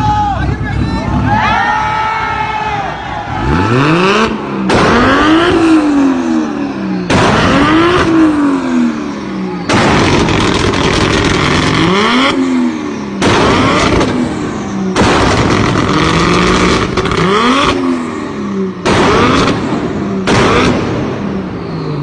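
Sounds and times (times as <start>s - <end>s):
car engine revving: 3.2s - 22.0s
car exhaust pops and bangs: 4.6s - 5.6s, 7.1s - 8.2s, 9.7s - 12.4s, 13.2s - 17.8s, 18.8s - 21.2s.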